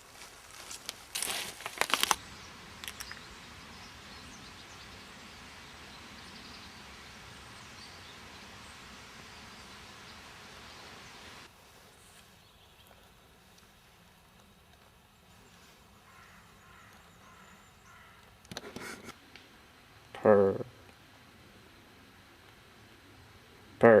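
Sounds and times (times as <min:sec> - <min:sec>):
sharp crunching crackles: 0:00.0 - 0:03.3.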